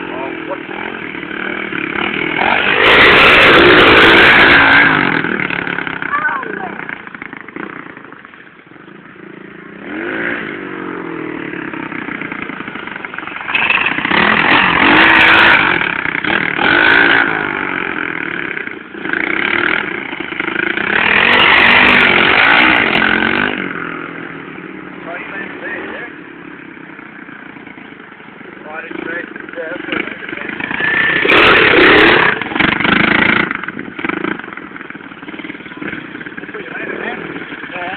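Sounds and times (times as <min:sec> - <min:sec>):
motorbike engine revving: 0:00.0 - 0:37.9.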